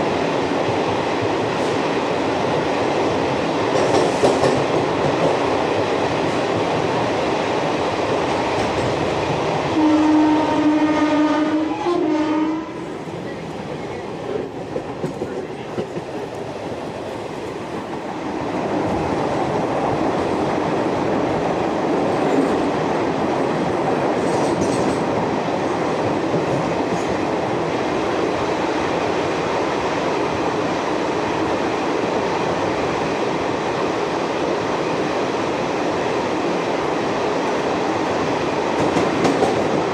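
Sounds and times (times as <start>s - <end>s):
train running: 0.0s - 39.9s
train horn: 9.7s - 12.9s.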